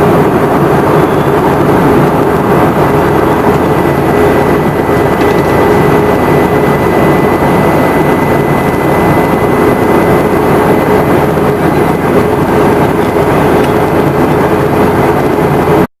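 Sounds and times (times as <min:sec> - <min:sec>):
jet engines roaring in cabin: 0:00.0 - 0:15.9
thin constant whine: 0:00.0 - 0:15.9.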